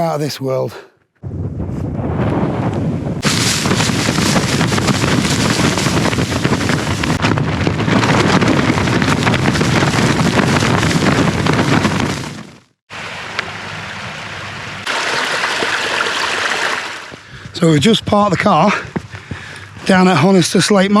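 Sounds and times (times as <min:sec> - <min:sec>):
strong wind on microphone: 0:01.2 - 0:12.7.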